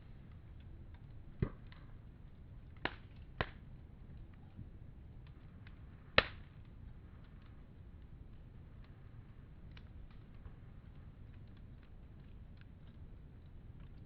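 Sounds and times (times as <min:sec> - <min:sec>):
sharp pops of fire: 0:00.0 - 0:14.0
wood fire crackling: 0:00.0 - 0:14.0.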